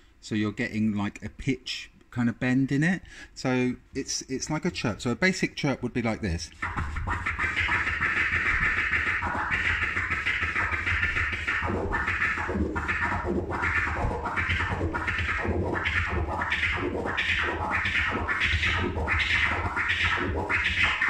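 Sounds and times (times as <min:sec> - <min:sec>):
turntable scratching: 0:06.3 - 0:21.0.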